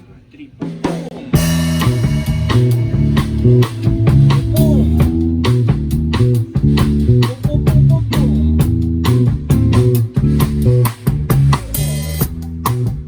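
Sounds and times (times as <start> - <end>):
rock band playing: 0.6 - 13.0
person counting in: 4.3 - 5.2, 7.1 - 8.7.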